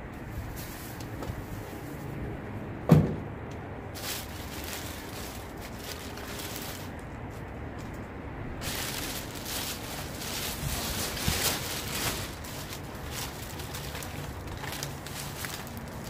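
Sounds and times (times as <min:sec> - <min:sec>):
louder knocks: 0:02.9 - 0:03.2
rustling and clattering items: 0:04.0 - 0:16.0.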